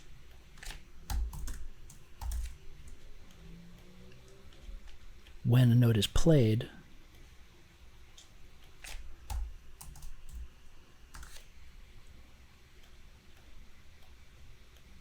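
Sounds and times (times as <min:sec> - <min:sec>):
keyboard keystrokes: 0:00.6 - 0:03.0, 0:08.8 - 0:10.5.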